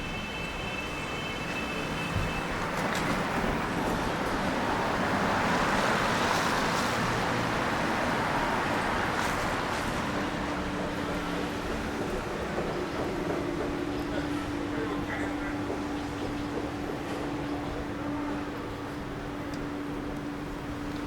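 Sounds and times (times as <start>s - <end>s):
tyres hissing on wet road: 2.9s - 11.6s.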